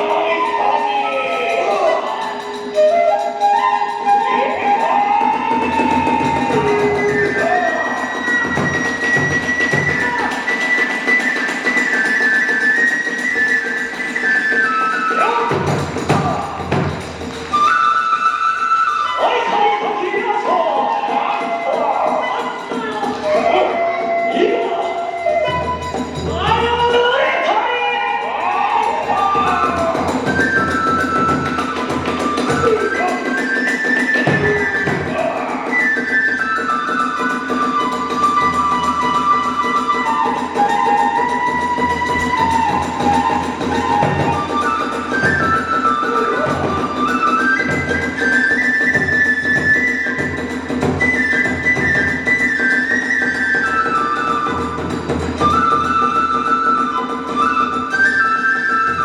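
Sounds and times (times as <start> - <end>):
small hand cymbals clashing: 0.0 - 15.0
bamboo flute melody: 0.0 - 59.0
steady drumming: 4.4 - 18.1, 25.3 - 27.3, 28.2 - 56.2.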